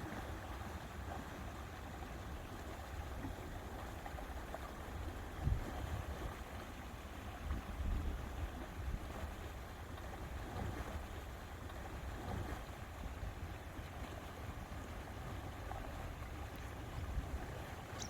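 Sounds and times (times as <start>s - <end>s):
lake water lapping: 0.0s - 18.0s
wind rumbling on microphone: 5.4s - 6.4s, 7.3s - 9.5s, 15.8s - 18.0s.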